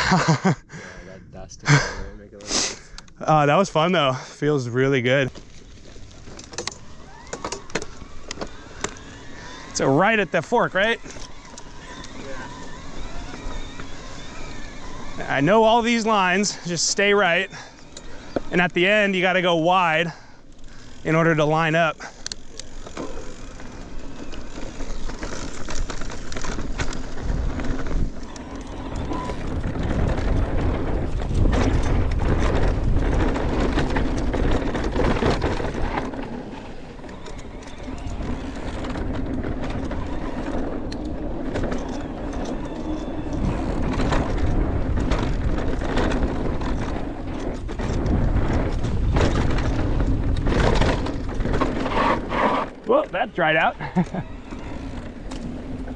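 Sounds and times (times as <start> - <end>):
bike tyres rumbling over rocks: 3.2 - 55.9
bike rattling knocks: 19.6 - 55.9.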